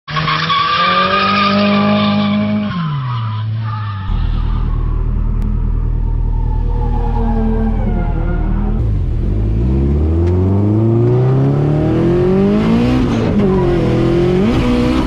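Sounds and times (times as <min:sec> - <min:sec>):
deep rumble: 0:04.1 - 0:11.4
car engine at high revs: 0:04.1 - 0:15.0.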